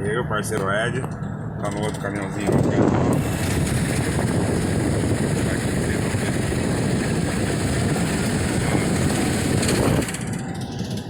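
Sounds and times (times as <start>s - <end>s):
truck cab road roar: 0.0s - 11.0s.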